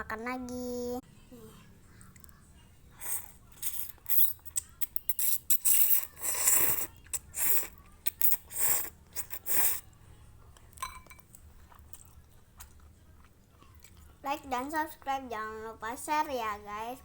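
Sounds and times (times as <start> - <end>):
noodles being slurped and chewed: 3.0 - 9.9.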